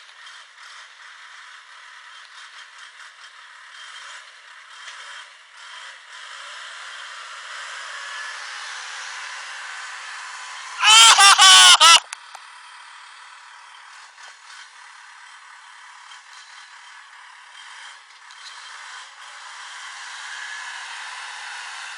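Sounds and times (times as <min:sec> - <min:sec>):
high-pitched yell: 0:10.8 - 0:12.2.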